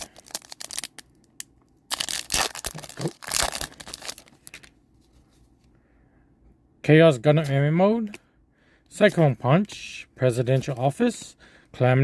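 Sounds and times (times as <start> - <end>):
foil pack crinkling: 0.0 - 1.2, 1.9 - 4.7
foil pack tearing: 1.9 - 4.3.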